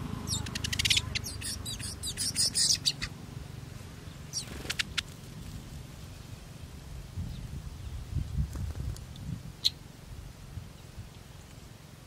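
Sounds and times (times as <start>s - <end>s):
small birds chirping: 0.0s - 6.5s, 7.2s - 9.9s.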